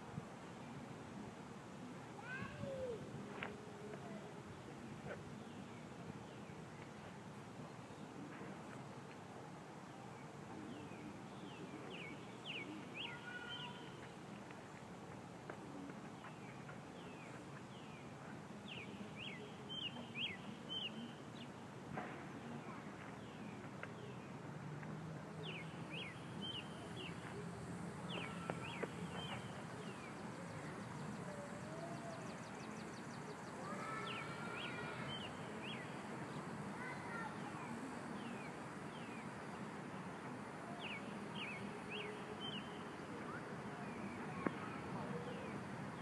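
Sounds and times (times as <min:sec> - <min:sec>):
background hiss: 0:00.0 - 0:46.0
small birds chirping: 0:10.2 - 0:15.2, 0:15.8 - 0:21.5, 0:25.4 - 0:46.0.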